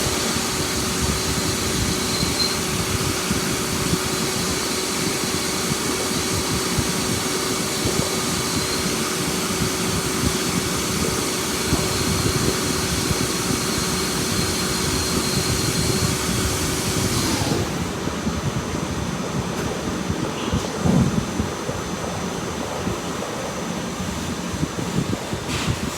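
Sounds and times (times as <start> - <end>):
lathe cutting metal: 0.0 - 18.0
continuous machine hum: 0.0 - 25.9.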